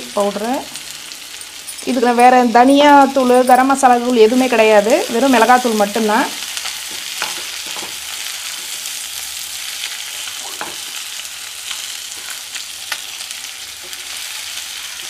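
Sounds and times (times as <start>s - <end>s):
chicken sizzling in a pan: 4.0s - 15.0s.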